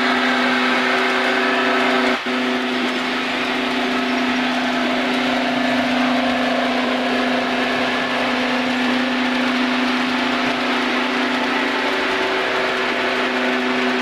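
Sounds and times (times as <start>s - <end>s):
model train humming and whirring: 0.0s - 14.0s.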